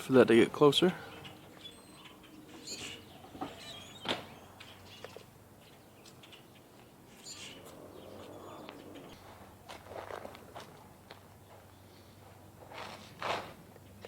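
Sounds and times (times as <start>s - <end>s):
faint bird chirps: 1.1s - 9.2s.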